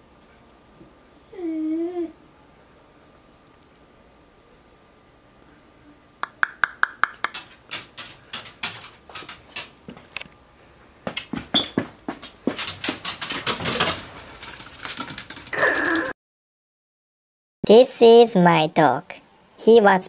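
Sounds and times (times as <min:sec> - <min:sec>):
dog making sharp clicks: 0:06.2 - 0:09.7.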